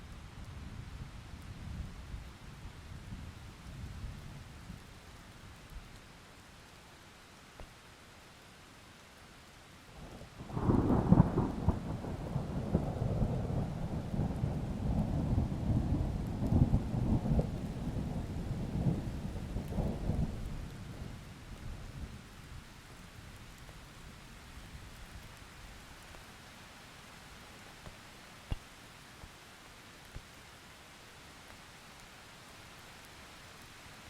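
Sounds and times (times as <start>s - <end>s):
steady rain: 0.0s - 34.0s
thunder rumbling: 10.4s - 21.3s.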